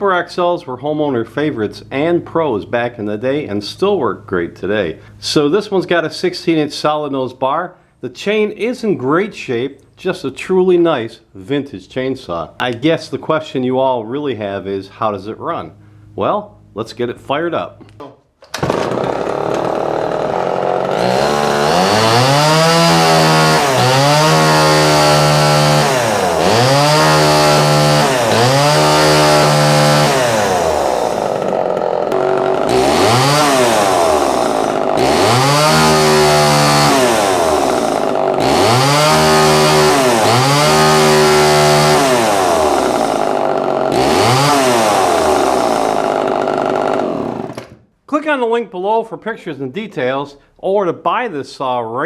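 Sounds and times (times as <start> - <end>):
chainsaw engine revving and idling: 18.5 - 47.8.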